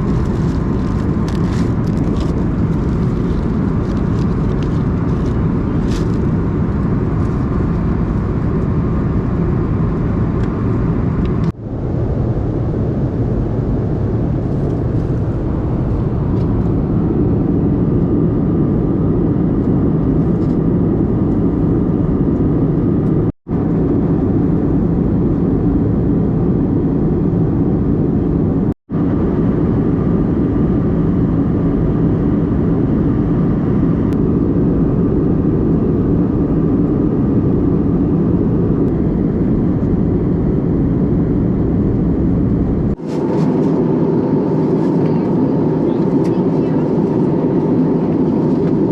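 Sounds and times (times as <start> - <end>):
airflow noise: 0.0 - 48.9
airplane cabin engine rumble: 0.0 - 48.9.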